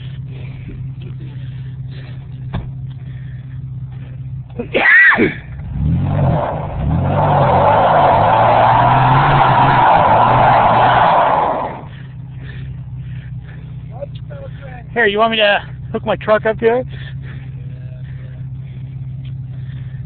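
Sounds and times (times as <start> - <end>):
wheels spinning on dirt: 0.0 - 14.0
pickup truck engine revving: 5.2 - 12.6.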